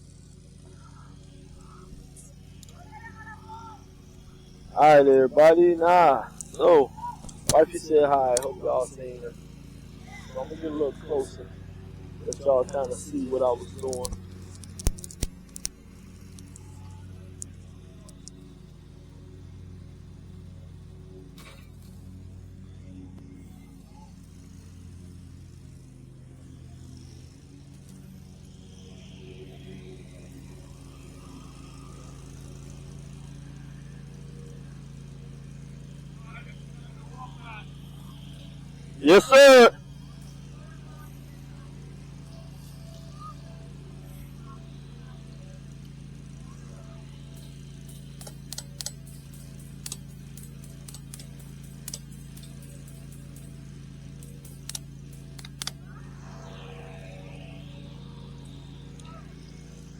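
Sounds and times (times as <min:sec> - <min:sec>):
lawn mower engine humming: 0:00.0 - 0:59.9
sharp light clicks of wire clips: 0:06.3 - 0:08.6, 0:13.7 - 0:18.5, 0:47.3 - 0:55.9.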